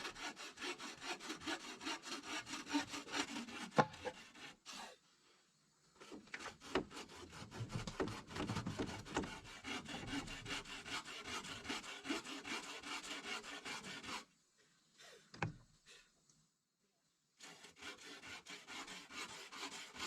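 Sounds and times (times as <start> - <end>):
hand tool rubbing wood: 0.0 - 5.0, 6.0 - 14.3, 17.4 - 20.0.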